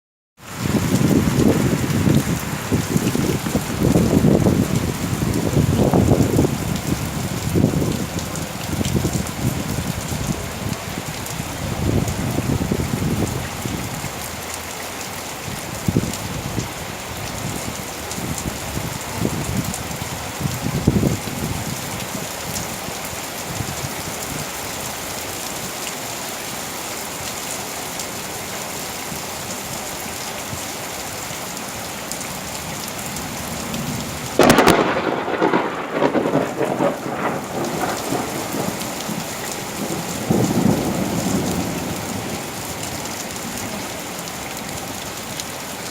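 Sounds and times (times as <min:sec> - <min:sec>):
heavy rain falling: 0:00.4 - 0:45.9
low thunder rumbles: 0:00.6 - 0:13.9, 0:33.6 - 0:44.0
loud thunderclap: 0:34.4 - 0:42.4.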